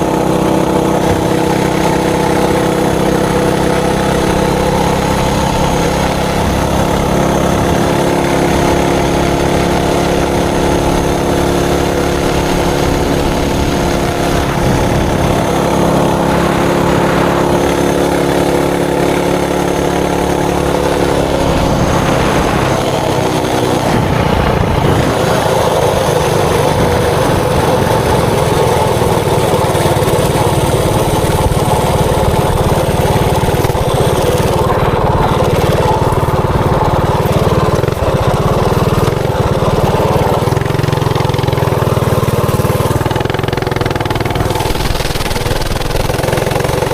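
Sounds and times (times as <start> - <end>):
mini bike engine running: 0.0 - 46.9.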